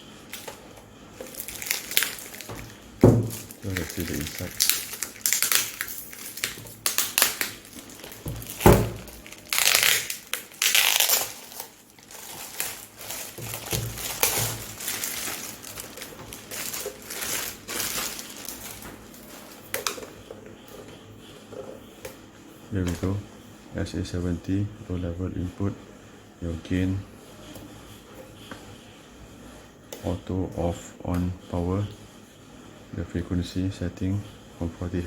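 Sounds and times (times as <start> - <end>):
packaging crinkling: 0.3 - 20.2.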